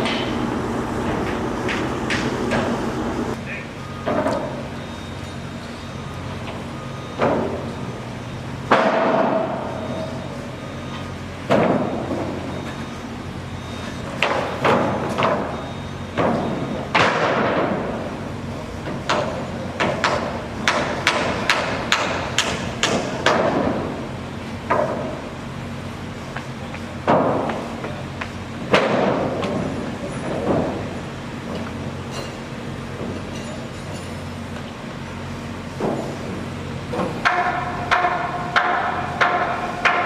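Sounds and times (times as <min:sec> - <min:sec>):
construction knocks and thuds: 0:00.0 - 0:03.4, 0:06.4 - 0:07.8, 0:08.6 - 0:10.0, 0:11.4 - 0:12.8, 0:14.0 - 0:18.1, 0:18.8 - 0:24.0, 0:24.6 - 0:25.3, 0:26.4 - 0:32.4, 0:35.7 - 0:40.0
low machine hum: 0:00.0 - 0:14.2.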